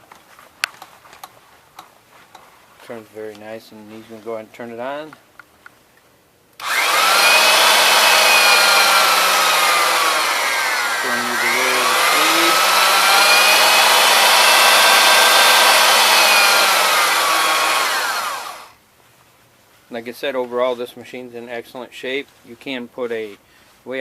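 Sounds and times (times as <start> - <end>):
milling machine motor whining: 6.6 - 18.7.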